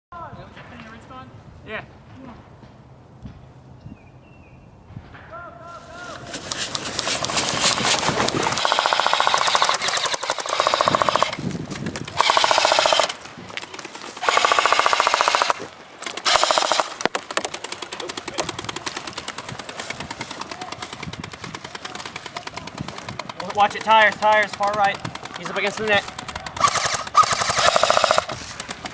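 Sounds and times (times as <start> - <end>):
airsoft guns firing bursts: 6.2 - 28.9.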